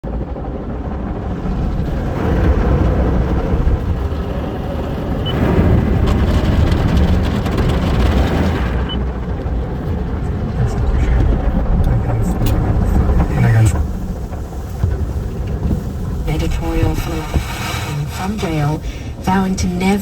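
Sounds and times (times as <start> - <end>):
car wash low rumble: 0.0 - 20.0
car wash hiss: 10.7 - 20.0.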